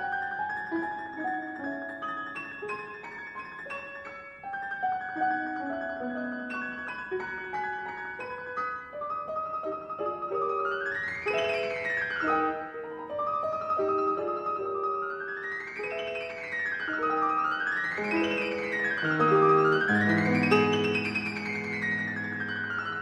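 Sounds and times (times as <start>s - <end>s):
solo classical piano: 0.0s - 23.0s.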